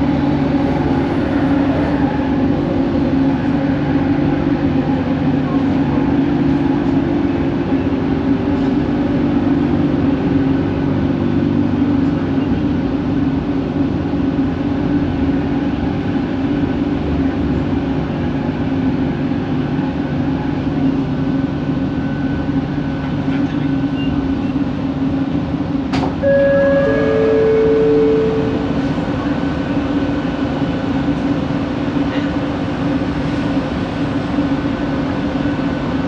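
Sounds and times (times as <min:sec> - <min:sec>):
rail and carriage noise: 0:00.0 - 0:36.0
train motor hum: 0:25.9 - 0:36.0
two-note falling chime: 0:26.2 - 0:29.4.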